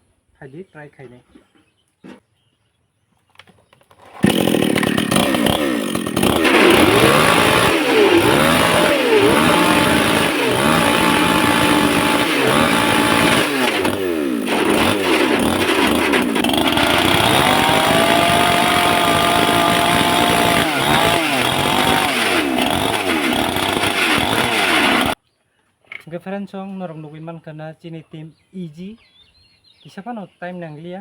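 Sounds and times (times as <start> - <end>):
chainsaw engine revving: 4.1 - 25.2.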